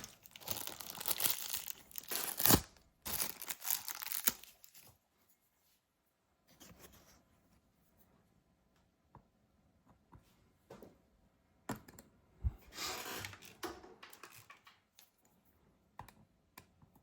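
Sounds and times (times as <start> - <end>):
adhesive tearing and crinkling: 0.0 - 4.9
faint handling sounds: 0.0 - 8.4.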